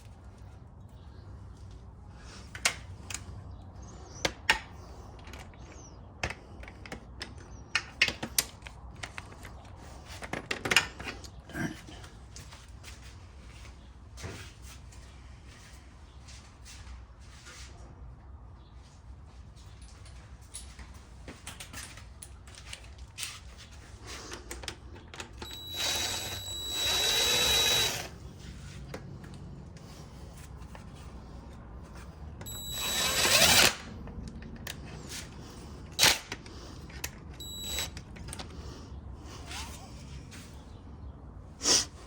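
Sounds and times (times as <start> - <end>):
power drill whining: 25.3 - 28.2, 32.4 - 33.9, 37.4 - 38.1.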